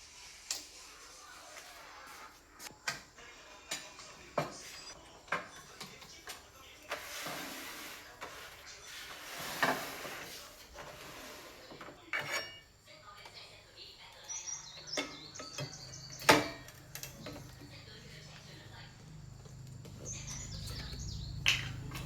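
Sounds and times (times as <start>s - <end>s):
scraping or rustling: 6.8s - 12.6s.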